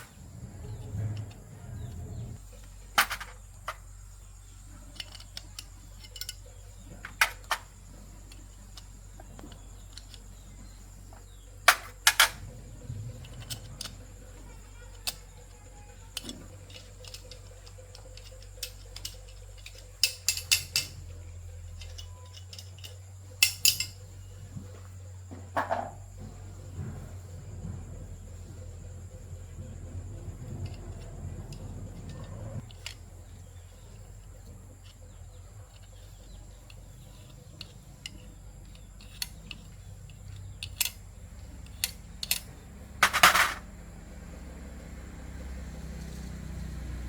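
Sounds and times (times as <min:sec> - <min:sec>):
clicks of small parts and tools: 0:00.0 - 0:04.0, 0:04.6 - 0:12.5, 0:13.1 - 0:24.2, 0:30.5 - 0:43.6
low hum: 0:00.0 - 0:04.7.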